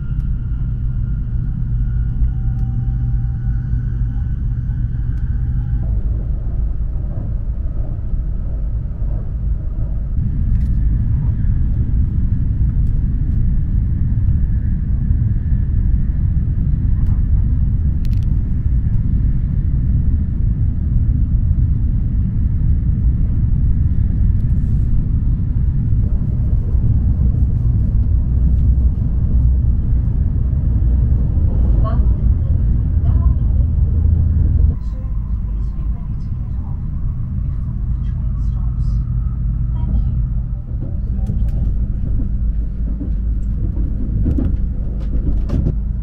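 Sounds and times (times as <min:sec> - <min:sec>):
train rumble inside cabin: 0:00.0 - 0:46.0.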